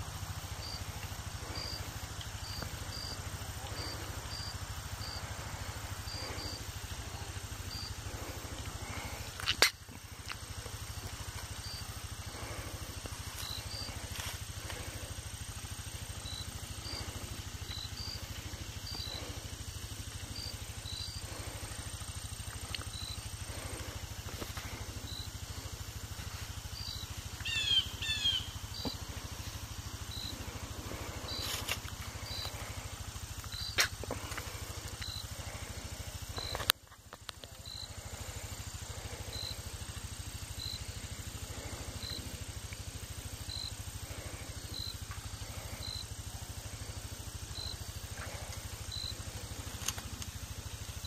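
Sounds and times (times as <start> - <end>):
steady low rumble: 0.0 - 51.0
birds high chirps: 13.3 - 14.5, 16.0 - 19.4, 20.2 - 21.8, 26.7 - 29.1, 30.0 - 30.4, 33.4 - 34.3, 34.9 - 35.3, 36.3 - 36.7, 47.5 - 47.9
bird falling calls: 26.8 - 29.1.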